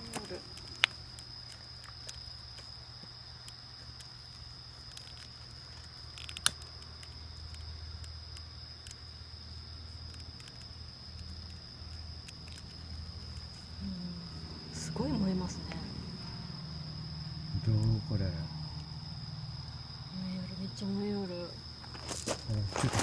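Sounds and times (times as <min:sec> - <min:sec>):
campfire crackling and popping: 0:00.0 - 0:13.8
insects trilling: 0:00.0 - 0:23.0.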